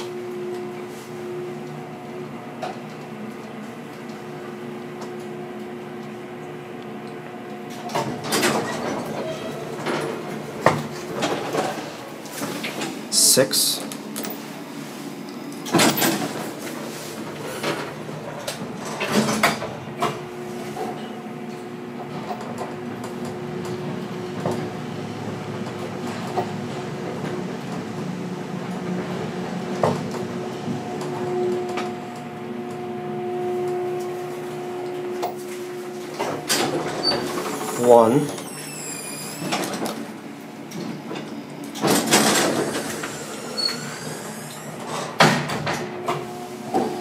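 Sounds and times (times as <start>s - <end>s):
higher elevator tone: 0.0s - 11.2s, 19.6s - 40.6s, 45.8s - 47.0s
elevator hum: 0.0s - 47.0s.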